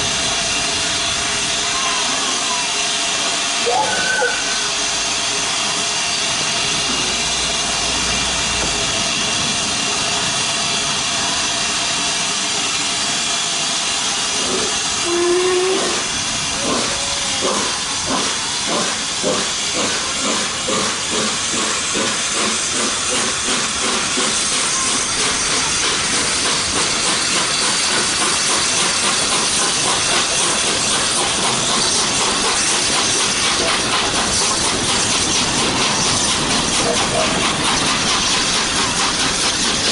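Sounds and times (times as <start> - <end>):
steam locomotive hissing steam: 0.0 - 39.9
low steam whistle: 1.6 - 5.4, 15.0 - 16.0
locomotive exhaust beats: 14.4 - 39.9.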